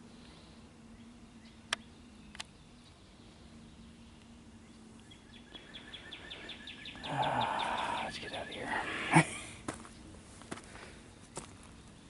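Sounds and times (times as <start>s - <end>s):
faint steady low hum: 0.0s - 12.0s
sharp clicks: 1.7s - 2.6s.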